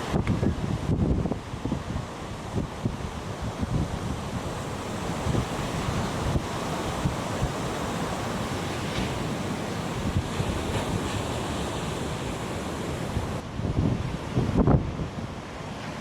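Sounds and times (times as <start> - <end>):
wind buffeting microphone: 0.0 - 15.7
surf breaking: 3.6 - 13.4.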